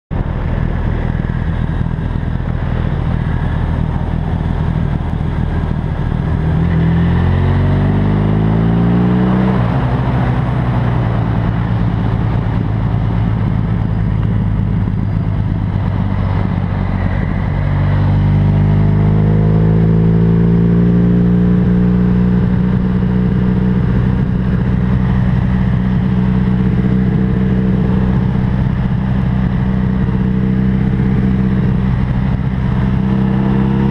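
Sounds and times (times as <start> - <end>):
motorcycle engine accelerating: 0.1 - 33.9
wind noise: 0.1 - 33.9.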